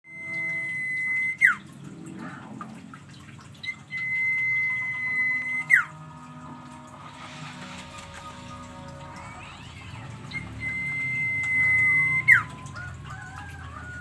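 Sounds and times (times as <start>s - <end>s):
songbird whistling: 0.1s - 1.6s, 3.6s - 6.0s, 8.0s - 14.0s.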